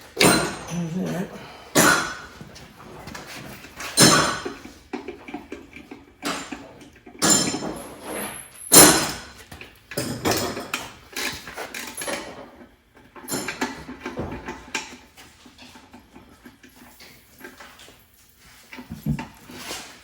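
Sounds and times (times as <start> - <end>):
metal tools clanking: 0.2 - 2.4.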